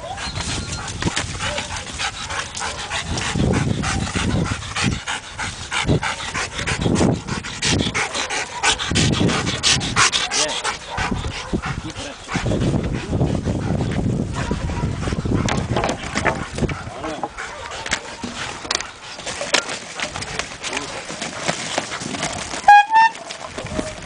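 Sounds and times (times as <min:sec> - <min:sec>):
dog panting: 0:00.0 - 0:23.4
rustling and scuffing clicks: 0:15.6 - 0:24.0.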